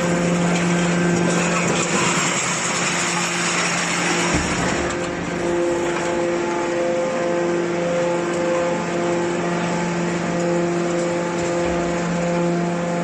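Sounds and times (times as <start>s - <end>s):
electric motor and hydraulic pump humming: 0.0s - 13.0s.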